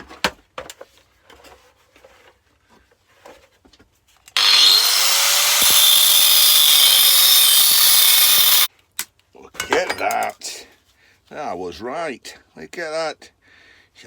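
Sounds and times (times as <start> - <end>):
angle grinder cutting metal: 4.4 - 8.7.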